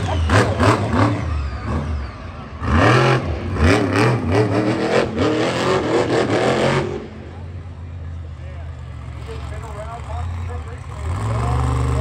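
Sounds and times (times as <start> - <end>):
truck engine revving hard: 0.0 - 7.4, 10.2 - 12.0.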